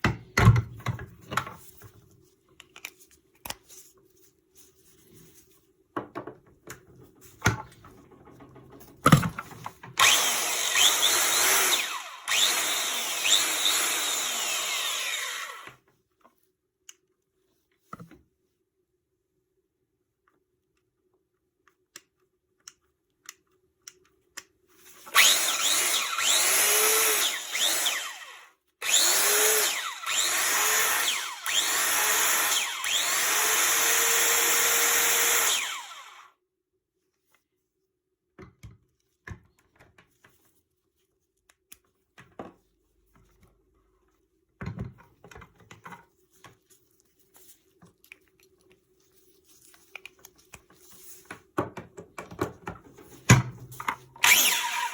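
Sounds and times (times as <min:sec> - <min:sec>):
circular saw motor running: 0:10.0 - 0:15.7, 0:25.1 - 0:36.2, 0:54.2 - 0:54.9.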